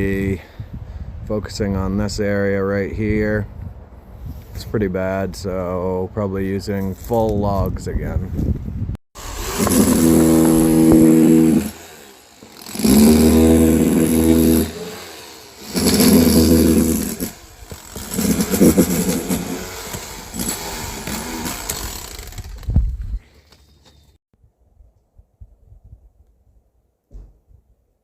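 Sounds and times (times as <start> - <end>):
small petrol engine revving: 9.2 - 22.7.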